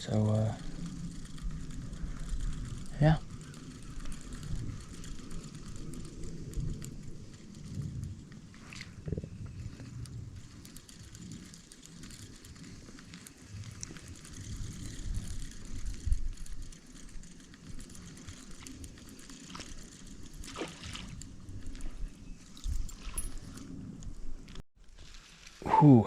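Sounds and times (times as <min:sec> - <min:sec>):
rain pattering: 0:00.0 - 0:21.9
water sloshing and splashing: 0:20.4 - 0:21.2.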